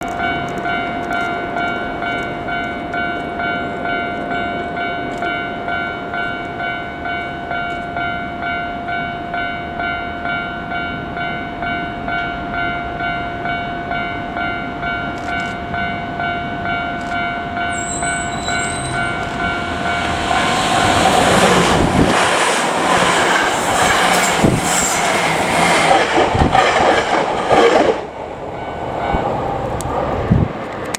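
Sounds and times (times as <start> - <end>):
level crossing alarm ringing: 0.0 - 25.1
electric train passing: 0.0 - 30.9
train wheels clattering over rail joints: 18.8 - 28.5.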